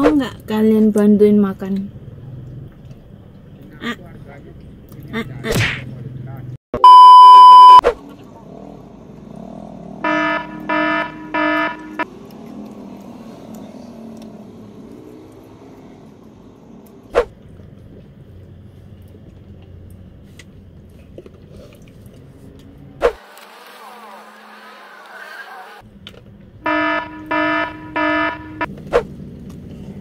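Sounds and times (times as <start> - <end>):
loud buzzer beeps: 6.8 - 7.8, 10.0 - 12.0, 26.7 - 28.7.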